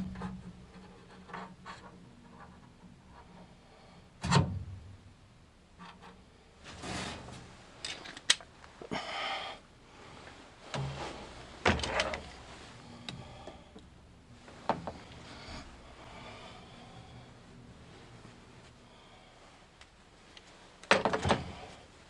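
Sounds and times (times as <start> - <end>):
scraping of things being handled: 5.8 - 8.9.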